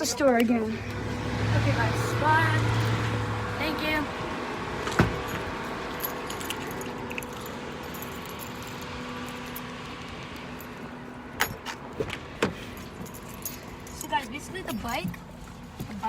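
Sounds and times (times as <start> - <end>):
keys jangling: 4.8 - 9.7, 12.6 - 14.8.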